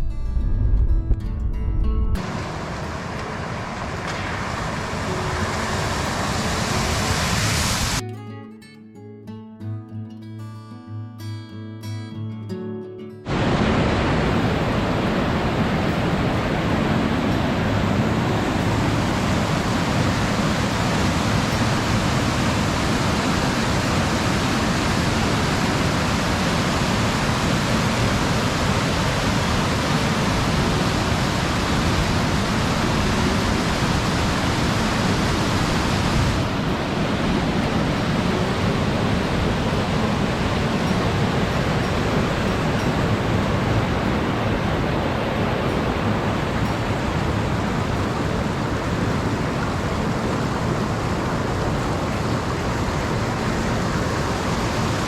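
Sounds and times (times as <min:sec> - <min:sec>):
waterfall rushing: 0:02.2 - 0:08.0, 0:13.3 - 0:55.0.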